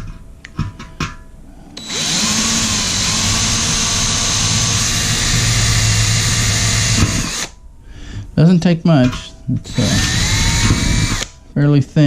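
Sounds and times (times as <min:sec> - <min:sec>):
electric drill boring through metal: 0:01.8 - 0:07.5, 0:09.6 - 0:11.3.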